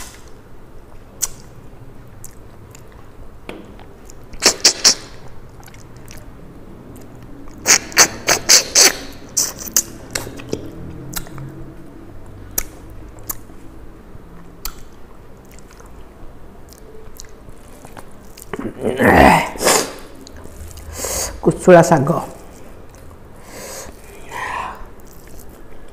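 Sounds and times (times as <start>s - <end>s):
person chewing with lip smacks: 1.2s - 1.5s, 2.1s - 6.3s, 6.9s - 11.6s, 12.2s - 13.6s, 14.4s - 16.0s, 16.6s - 18.7s, 22.4s - 23.2s, 25.0s - 25.9s
sharp mouth clicks: 1.2s - 1.6s, 3.8s - 6.3s, 6.9s - 11.6s, 12.2s - 13.6s, 14.6s - 16.0s, 16.6s - 18.6s
breathy noise: 18.6s - 21.4s, 22.4s - 25.2s.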